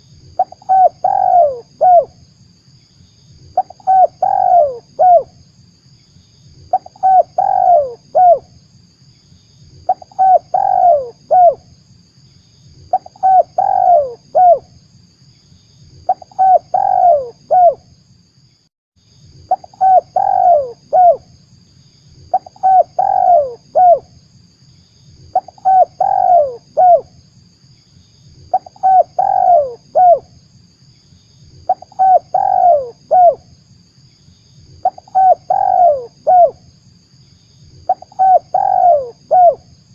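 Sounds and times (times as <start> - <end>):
dove cooing: 0.4 - 2.1, 3.6 - 5.3, 6.7 - 8.5, 9.9 - 11.6, 12.9 - 14.7, 16.1 - 17.8, 19.5 - 21.3, 22.3 - 24.1, 25.3 - 27.1, 28.5 - 30.3, 31.7 - 33.4, 34.8 - 36.6, 37.9 - 39.6.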